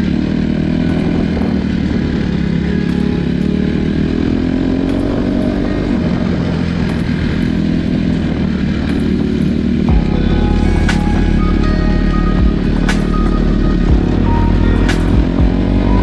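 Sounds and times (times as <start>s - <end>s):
dirt bike engine running: 0.0s - 11.1s.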